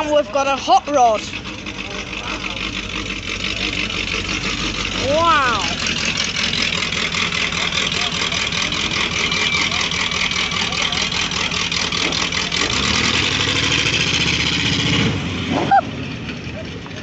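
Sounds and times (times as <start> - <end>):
hot rod engine driving past: 0.0 - 17.0
lower engine note: 0.0 - 17.0.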